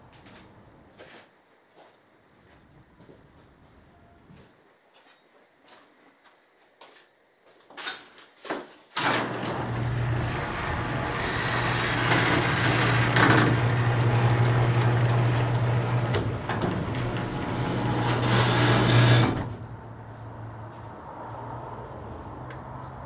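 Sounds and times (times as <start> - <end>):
v-eight engine running: 9.0 - 19.6.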